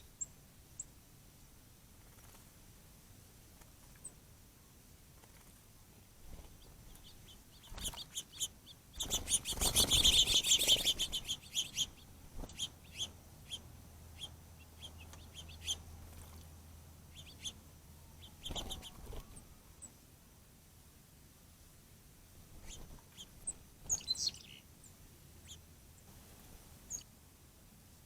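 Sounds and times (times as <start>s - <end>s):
small songbirds chirping: 0.0s - 2.5s, 5.1s - 20.0s, 22.4s - 27.2s.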